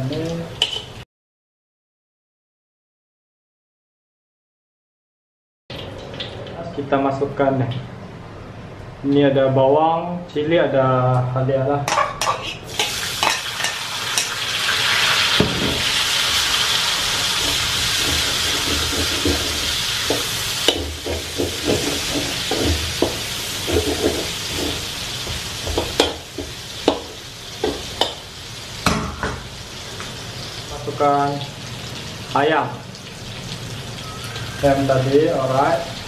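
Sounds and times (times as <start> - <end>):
metal spatula scraping wok: 11.9 - 14.4, 16.4 - 28.2
aromatics sizzling in oil: 12.2 - 36.0.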